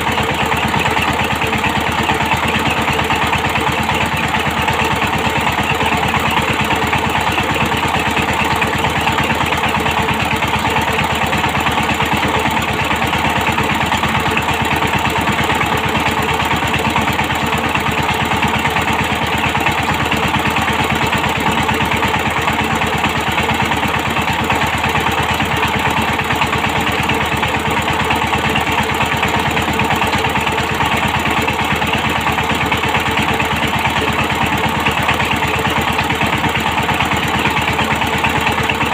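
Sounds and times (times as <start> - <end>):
tiller engine running: 0.0 - 38.9.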